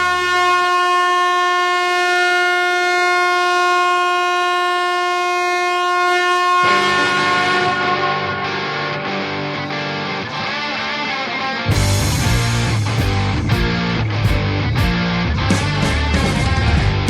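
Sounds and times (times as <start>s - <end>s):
held horn-like note: 0.0s - 10.5s
full band playing: 11.7s - 17.0s.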